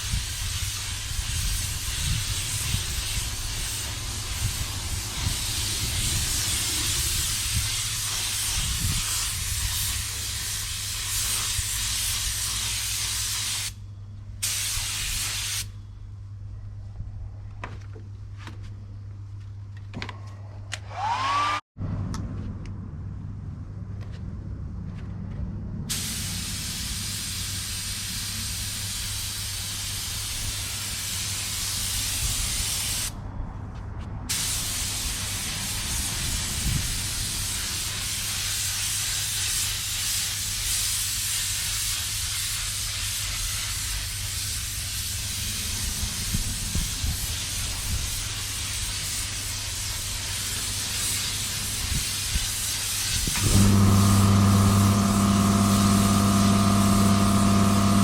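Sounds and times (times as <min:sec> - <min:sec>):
paint spray hissing: 0:00.0 - 0:13.8, 0:14.4 - 0:15.8, 0:25.9 - 0:33.2, 0:34.3 - 0:58.0
motor hum: 0:53.4 - 0:58.0.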